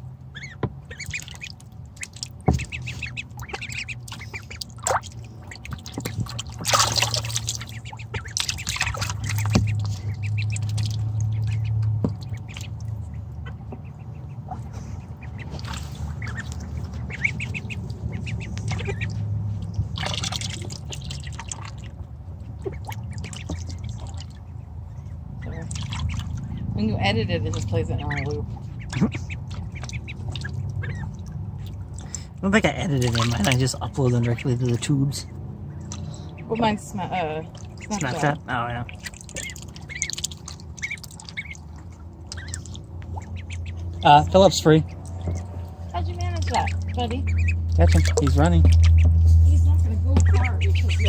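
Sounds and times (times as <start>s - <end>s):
ducklings splashing in water: 0.0s - 51.0s
steady low hum: 0.0s - 51.0s
ducklings peeping: 0.1s - 51.0s.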